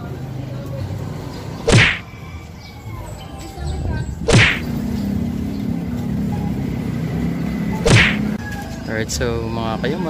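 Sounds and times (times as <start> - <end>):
whoosh swish falling in pitch: 1.7 - 2.0, 4.3 - 4.7, 7.8 - 8.3.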